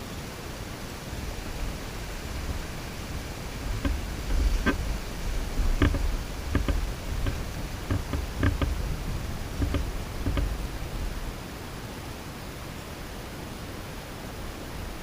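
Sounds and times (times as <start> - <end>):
bird pecking at feeder: 2.6 - 11.1.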